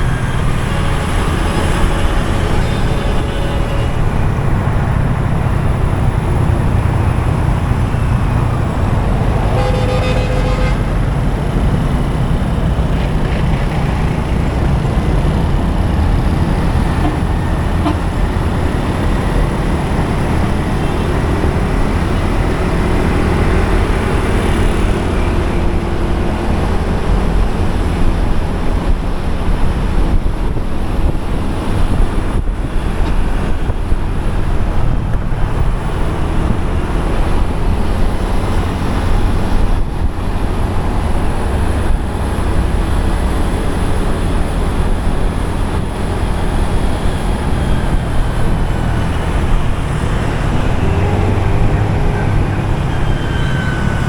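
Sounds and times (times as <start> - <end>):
vehicle horn: 0.0 - 5.2, 9.4 - 11.2, 16.3 - 19.4, 20.2 - 25.9, 50.9 - 54.0
motorcycle engine rumble: 0.0 - 54.0
road and wind noise: 0.0 - 54.0.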